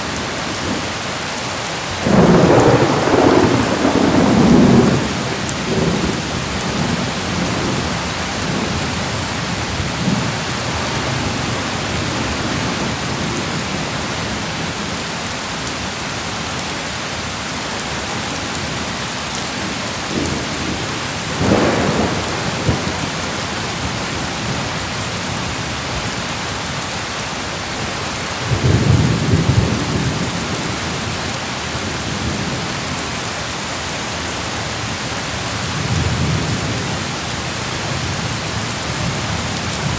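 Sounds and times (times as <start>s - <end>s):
steady rain falling: 0.0s - 39.9s
thunder rumbling: 2.0s - 13.8s, 19.7s - 24.7s.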